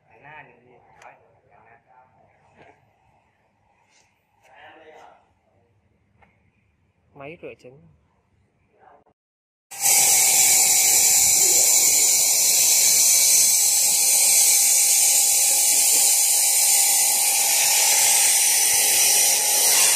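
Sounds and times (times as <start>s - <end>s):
machine hissing: 9.7s - 19.9s.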